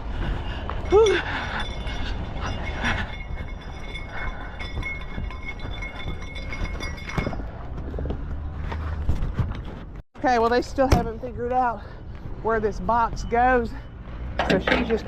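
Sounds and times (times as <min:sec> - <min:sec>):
metallic knocks and clinks: 0:00.6 - 0:08.5, 0:14.2 - 0:15.0.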